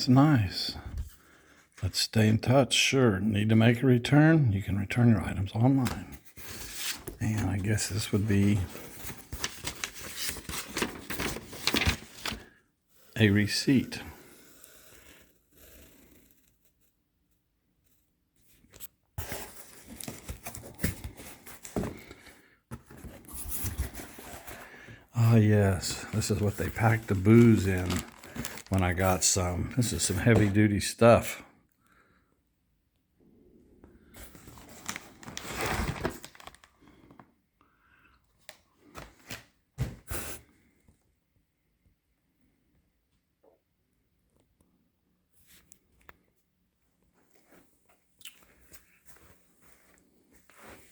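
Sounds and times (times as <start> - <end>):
packing material crinkling: 25.2 - 30.5, 34.4 - 37.2
sharp handling noises: 26.2 - 28.9.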